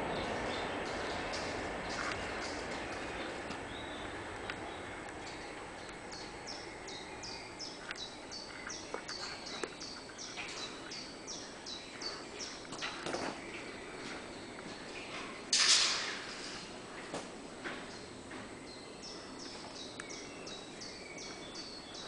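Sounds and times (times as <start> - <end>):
bird calling: 0.0 - 15.4
outdoor background noise: 0.0 - 22.0.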